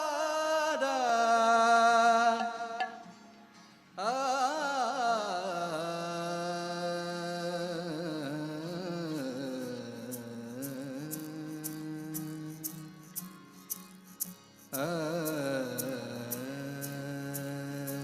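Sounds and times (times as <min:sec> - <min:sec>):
wordless devotional singing: 0:00.0 - 0:03.2, 0:04.0 - 0:18.0.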